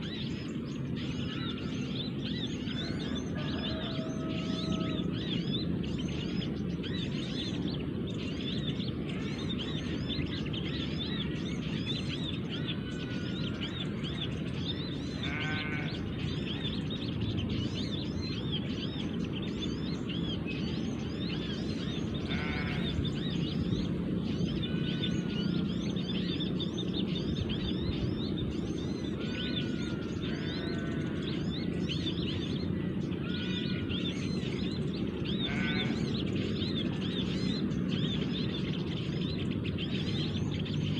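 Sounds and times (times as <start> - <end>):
small birds chirping: 0.0 - 40.9
rattling bird trills: 35.4 - 36.6.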